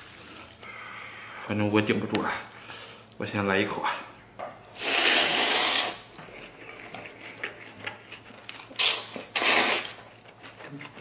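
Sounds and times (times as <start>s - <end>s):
person slurping noodles: 4.8s - 6.1s, 8.8s - 10.0s
chewing with wet clicks: 6.1s - 11.0s.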